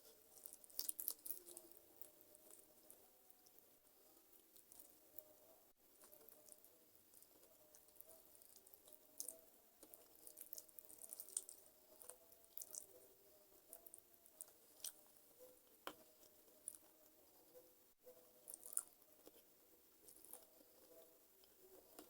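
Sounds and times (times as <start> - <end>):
wet chewing clicks and crackles: 0.0 - 3.6, 6.0 - 13.0, 13.6 - 17.2, 18.4 - 20.7.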